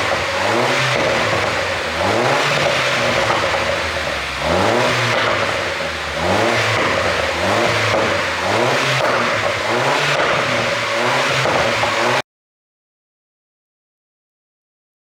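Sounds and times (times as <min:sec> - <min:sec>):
car engine revving: 0:00.0 - 0:12.2
exhaust crackles and pops: 0:00.0 - 0:12.2.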